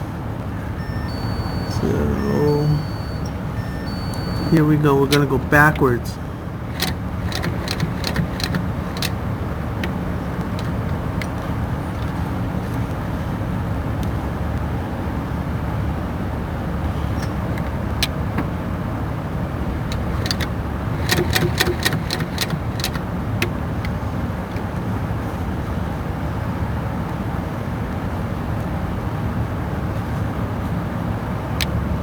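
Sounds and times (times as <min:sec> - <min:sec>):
sewing machine motor rumble: 0:00.7 - 0:13.6, 0:19.6 - 0:24.1
sewing machine stitching clicks: 0:02.8 - 0:06.0, 0:06.7 - 0:12.9, 0:19.8 - 0:24.0.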